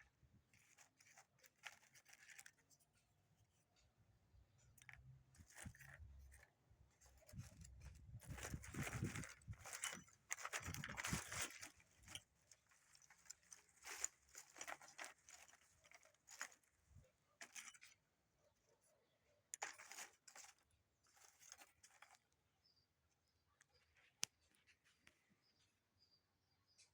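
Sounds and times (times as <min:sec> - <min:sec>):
rustling and scraping of objects: 0:00.0 - 0:22.4.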